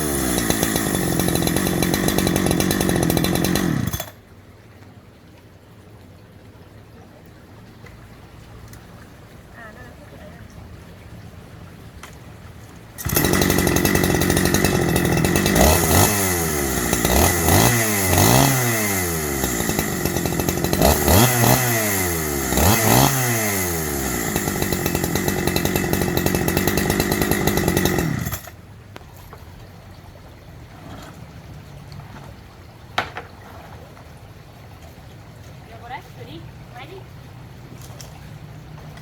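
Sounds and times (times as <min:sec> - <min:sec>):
chainsaw engine revving: 0:00.0 - 0:04.2, 0:13.0 - 0:28.6.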